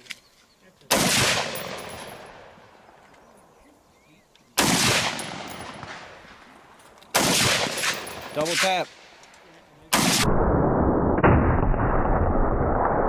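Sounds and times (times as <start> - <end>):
loud gunshot with echo: 4.6 - 6.1, 7.2 - 8.8, 9.9 - 13.0.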